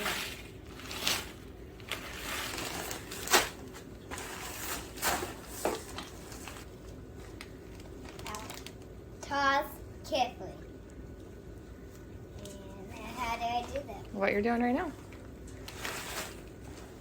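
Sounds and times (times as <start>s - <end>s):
crackers rustling and rattling: 0.0s - 9.0s, 14.8s - 17.0s.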